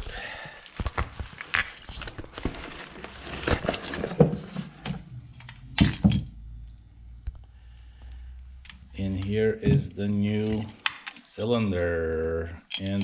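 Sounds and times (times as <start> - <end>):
packaging being pulled open: 0.0 - 4.2.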